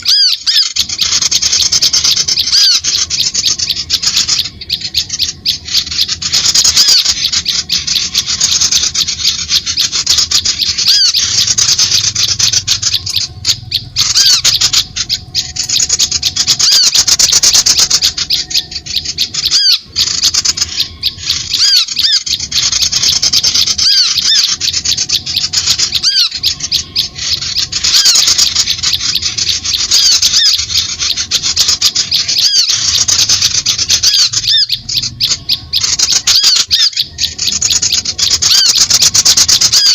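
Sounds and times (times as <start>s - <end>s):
small birds chattering: 0.0s - 39.9s.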